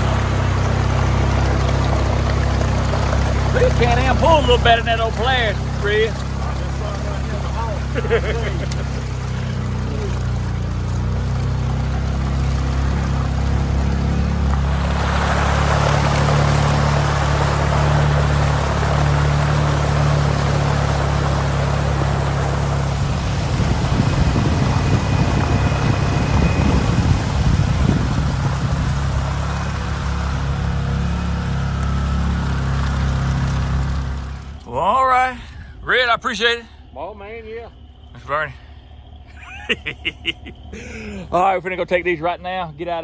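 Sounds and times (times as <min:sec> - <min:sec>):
utility vehicle engine running: 0:00.0 - 0:43.0
rushing noise: 0:12.8 - 0:34.6.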